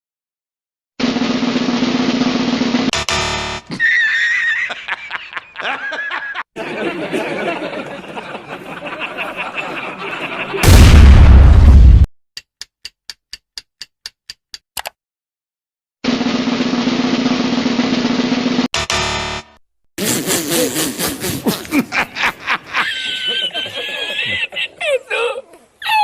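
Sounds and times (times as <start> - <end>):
evenly spaced clicks: 12.5 - 15.0.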